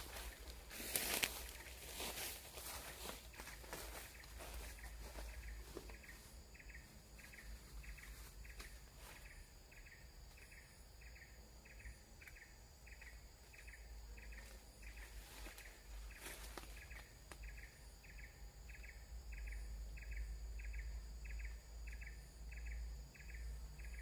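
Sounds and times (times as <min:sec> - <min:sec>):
faint insect chirping: 0:00.0 - 0:24.0.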